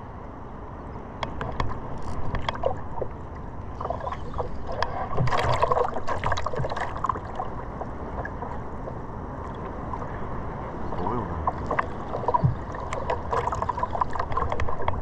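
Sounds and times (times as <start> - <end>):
small clicks and ticks: 1.2 - 2.8, 11.5 - 15.0
water splashing around surfboard: 1.3 - 15.0.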